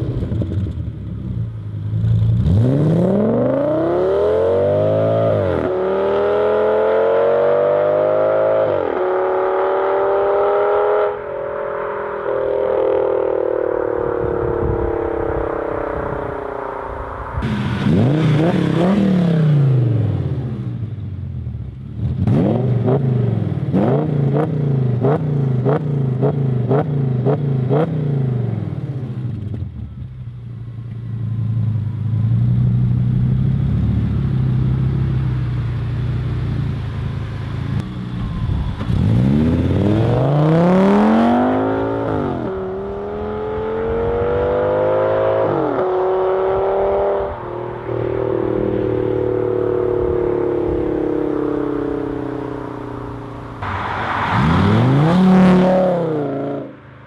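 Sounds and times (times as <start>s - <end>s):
car engine revving: 0.0s - 29.7s, 36.8s - 57.0s
car accelerating hard: 2.2s - 20.8s, 38.3s - 56.8s
car engine idling: 29.7s - 39.0s, 48.5s - 54.2s.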